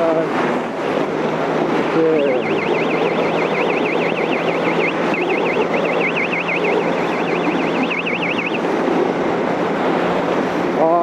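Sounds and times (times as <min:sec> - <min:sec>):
wind noise: 0:00.0 - 0:10.8
warbling electronic alert tone: 0:02.3 - 0:08.6.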